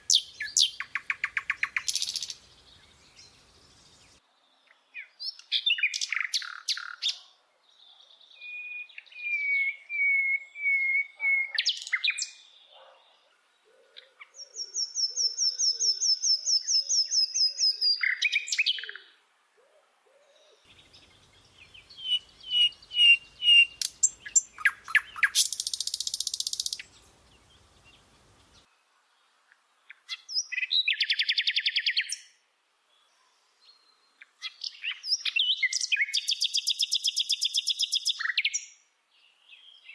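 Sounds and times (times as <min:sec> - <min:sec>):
songbird singing: 0:00.0 - 0:39.9
fast bird trill: 0:22.0 - 0:26.9.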